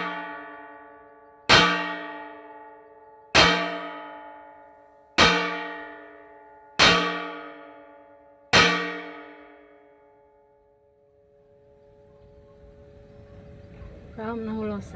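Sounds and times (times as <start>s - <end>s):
metal pot clanging: 3.4s - 4.2s, 6.8s - 7.8s, 8.6s - 9.5s.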